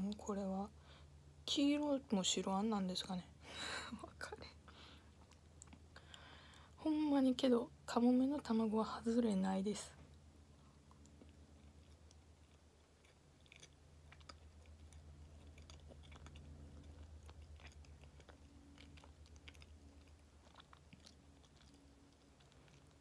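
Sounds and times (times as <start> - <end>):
wet mouth chewing clicks: 5.1 - 6.7, 10.1 - 23.0.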